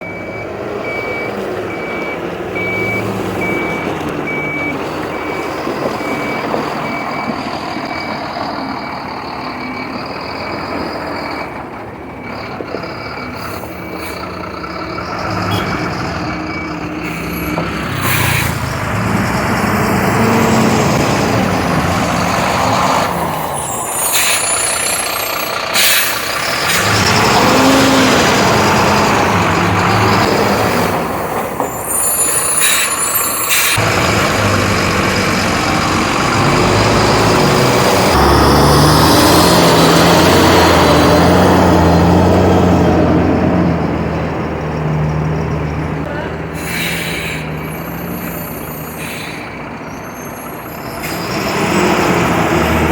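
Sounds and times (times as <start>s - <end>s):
truck diesel engine revving: 0.0s - 31.6s, 32.6s - 52.9s
air brake hisses and squeals: 13.3s - 14.3s, 17.0s - 18.6s, 23.4s - 26.3s, 31.4s - 33.8s, 46.6s - 51.4s.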